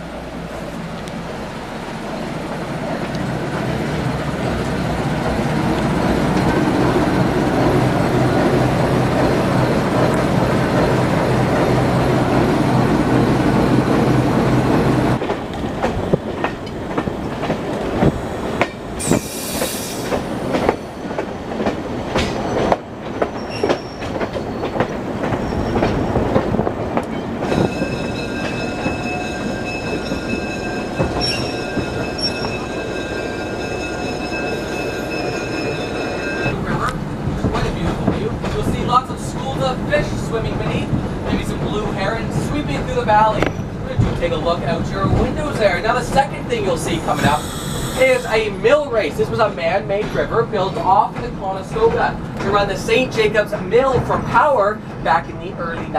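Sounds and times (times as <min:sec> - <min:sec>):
rail joints clacking: 0:00.0 - 0:55.9
train rumbling on rails: 0:00.0 - 0:55.9
train wheels squealing: 0:19.0 - 0:21.2, 0:22.3 - 0:26.1, 0:27.1 - 0:36.8, 0:43.3 - 0:44.0, 0:46.9 - 0:48.5.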